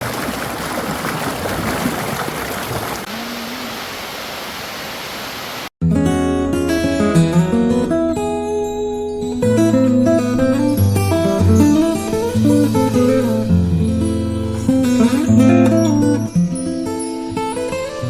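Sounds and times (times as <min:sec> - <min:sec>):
acoustic guitar music: 0:05.8 - 0:18.0.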